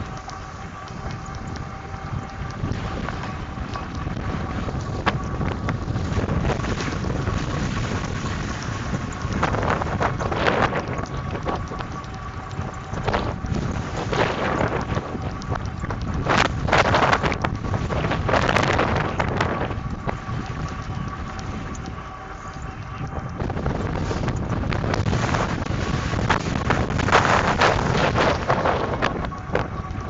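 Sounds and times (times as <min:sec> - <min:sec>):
faint steady whine: 0:00.0 - 0:30.0
wind buffeting microphone: 0:00.0 - 0:30.0.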